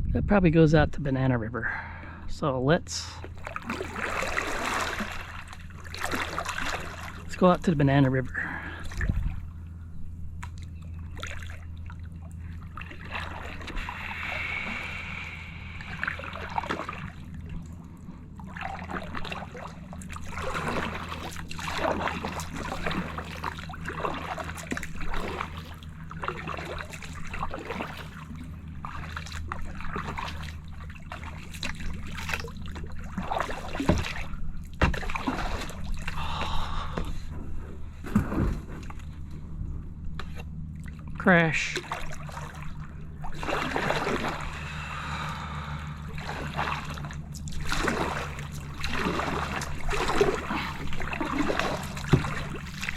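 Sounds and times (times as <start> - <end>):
steady low hum: 0.0 - 52.9
paddle splashing water: 2.8 - 39.4, 40.1 - 52.9.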